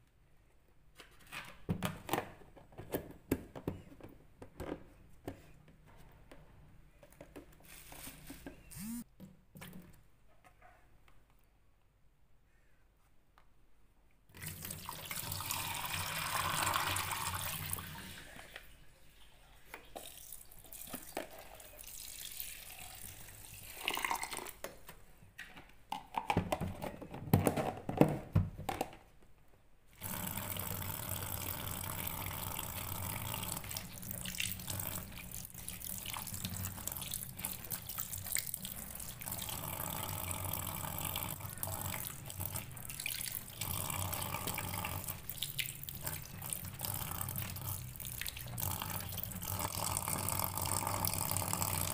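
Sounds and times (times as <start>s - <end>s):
tap water running into sink: 14.4s - 18.7s, 30.0s - 51.9s.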